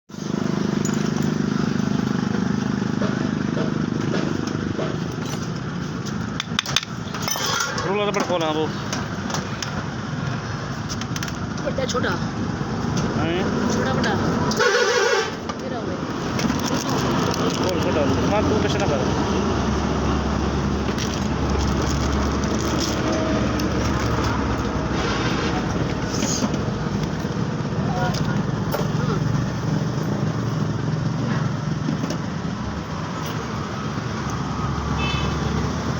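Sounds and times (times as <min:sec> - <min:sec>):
motorcycle engine running: 0:00.1 - 0:06.9, 0:16.0 - 0:35.9.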